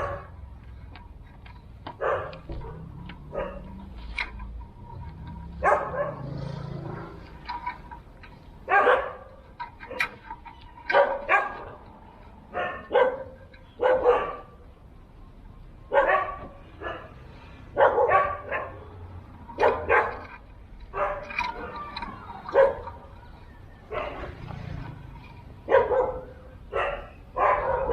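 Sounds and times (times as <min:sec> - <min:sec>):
dog barking: 0:00.0 - 0:00.3, 0:02.0 - 0:03.8, 0:05.6 - 0:06.5, 0:08.7 - 0:10.2, 0:10.9 - 0:11.8, 0:12.5 - 0:14.6, 0:15.9 - 0:18.9, 0:19.6 - 0:21.7, 0:22.5 - 0:23.0, 0:23.9 - 0:24.4, 0:25.6 - 0:27.9.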